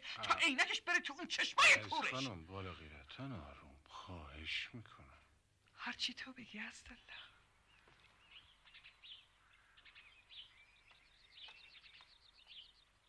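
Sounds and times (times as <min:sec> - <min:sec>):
faint birdsong with trills: 0:06.7 - 0:13.0.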